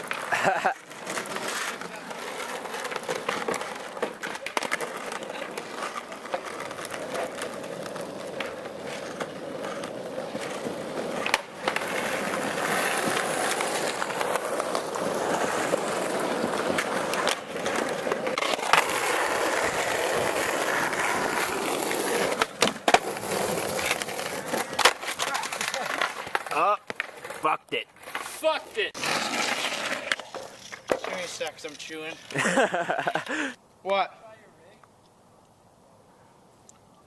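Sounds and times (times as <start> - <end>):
skateboard clacks: 0.0 - 27.4
skateboard wheels rolling: 0.0 - 33.6.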